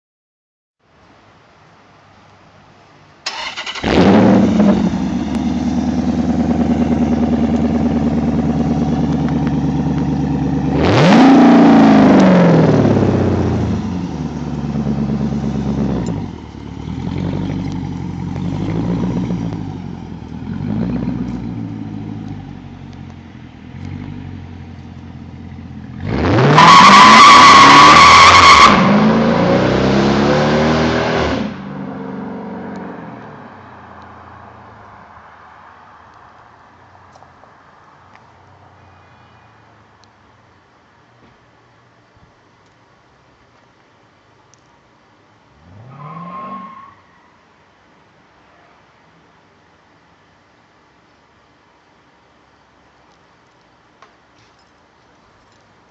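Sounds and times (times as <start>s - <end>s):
car engine idling and revving: 3.3s - 35.1s.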